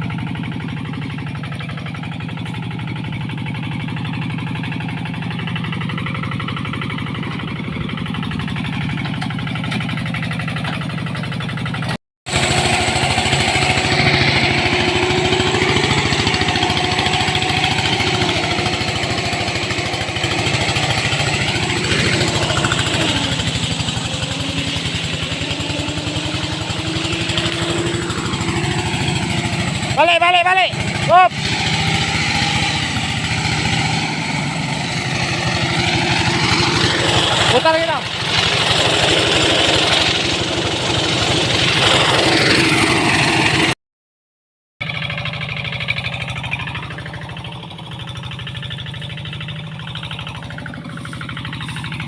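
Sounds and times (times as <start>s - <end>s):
tractor engine running: 0.0s - 43.8s, 44.8s - 52.0s
whining tones: 12.4s - 43.1s.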